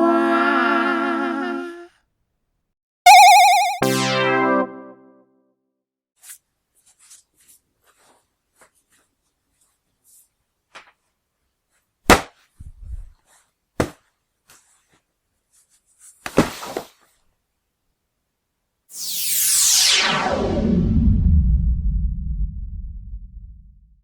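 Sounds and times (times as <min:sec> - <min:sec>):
low rumble: 0:20.4 - 0:24.0.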